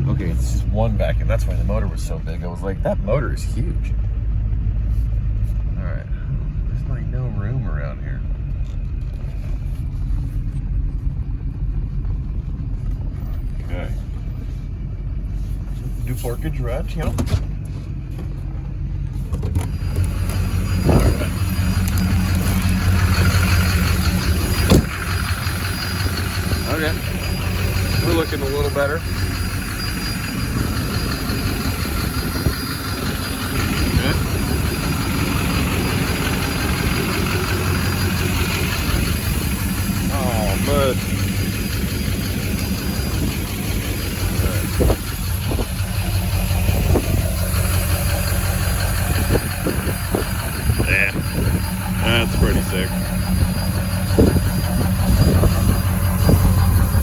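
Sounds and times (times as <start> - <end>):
truck engine humming: 0.0 - 57.0
low thump: 24.6 - 25.0.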